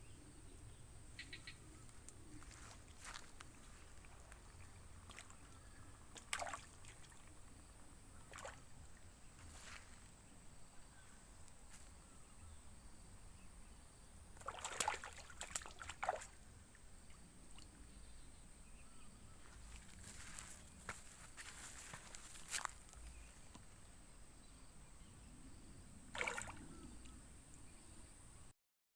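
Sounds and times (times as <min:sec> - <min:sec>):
water splashing and sloshing: 0:02.4 - 0:07.6, 0:08.2 - 0:10.1, 0:14.4 - 0:17.8, 0:26.1 - 0:27.1.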